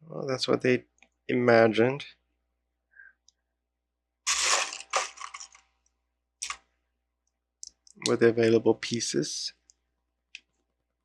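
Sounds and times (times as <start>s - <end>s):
plastic pieces crunching and rattling: 4.3s - 5.6s.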